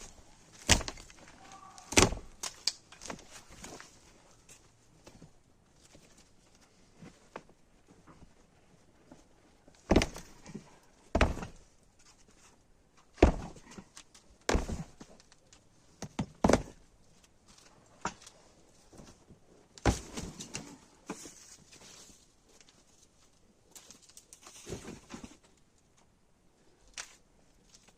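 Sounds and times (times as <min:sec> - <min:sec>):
objects knocking and thudding: 0:00.6 - 0:02.4, 0:09.9 - 0:11.7, 0:13.2 - 0:13.9, 0:14.5 - 0:15.2, 0:16.0 - 0:16.8, 0:19.8 - 0:21.4.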